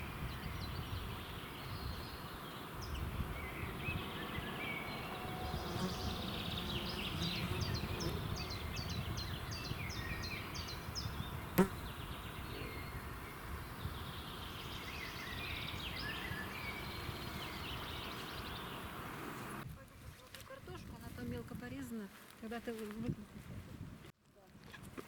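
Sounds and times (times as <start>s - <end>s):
birds chirping: 0.0s - 19.6s
bird singing high falling notes: 0.3s - 19.5s.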